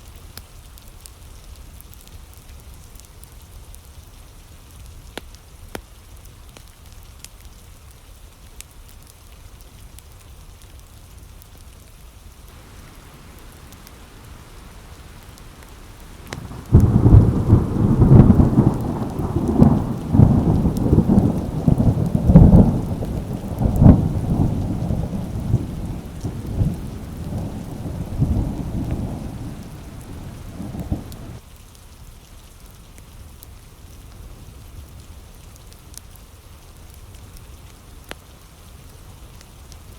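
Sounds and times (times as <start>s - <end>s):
steady rain: 0.0s - 39.9s
thunder rumbling: 12.5s - 31.4s.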